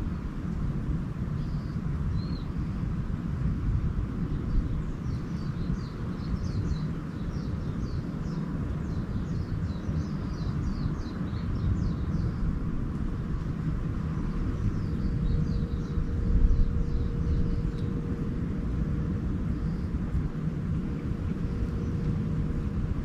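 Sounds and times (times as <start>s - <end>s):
steady low rumble: 0.0s - 23.0s
small bird chirping: 4.5s - 12.5s, 14.0s - 18.1s.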